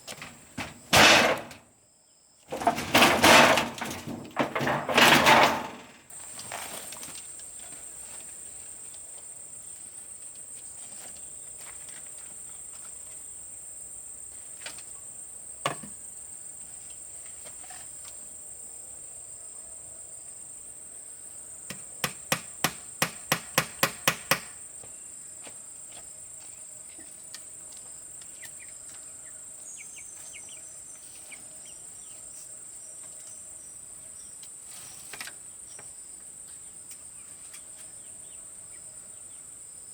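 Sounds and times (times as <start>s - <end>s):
insects buzzing: 0.0s - 39.9s
sharp knocks: 0.6s - 1.6s.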